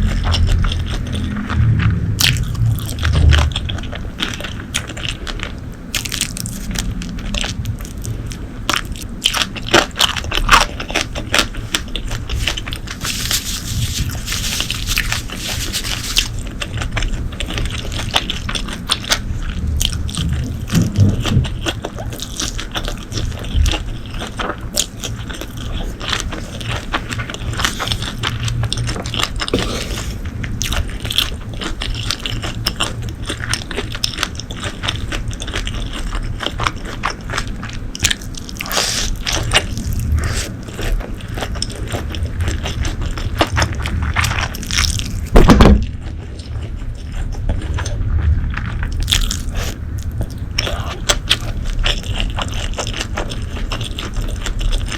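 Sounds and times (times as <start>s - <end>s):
biting and chewing food: 0.0s - 54.9s.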